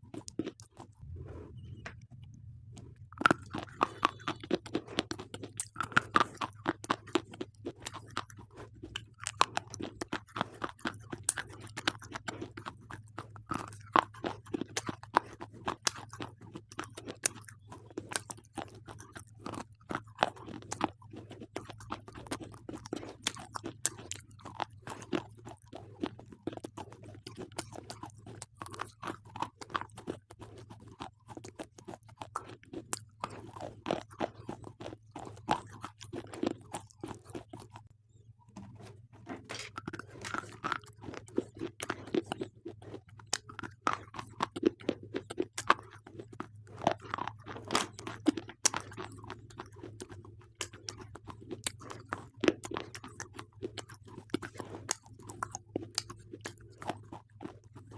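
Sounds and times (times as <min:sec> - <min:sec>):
low steady hum: 0:00.0 - 0:10.1
slate pencils being chewed: 0:00.0 - 0:57.9.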